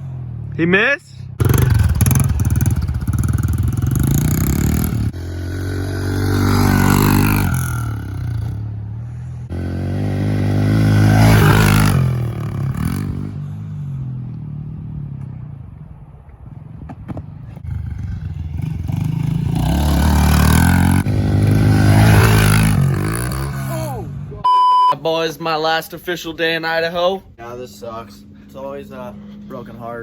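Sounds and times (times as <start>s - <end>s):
pit bike engine revving: 1.3s - 14.9s, 17.6s - 24.0s.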